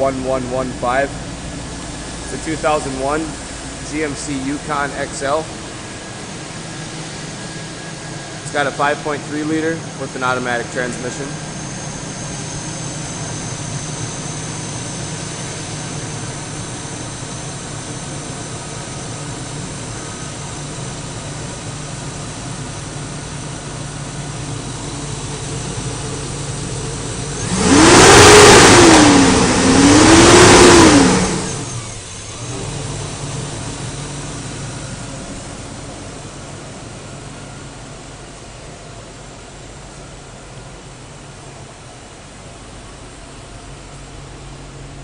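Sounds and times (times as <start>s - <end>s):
engine idling and revving: 0.0s - 38.8s.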